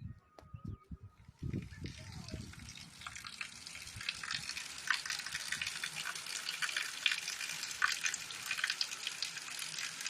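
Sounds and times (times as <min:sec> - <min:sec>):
raindrops splashing on surfaces: 0:01.6 - 0:10.0
rain hiss: 0:01.8 - 0:10.0.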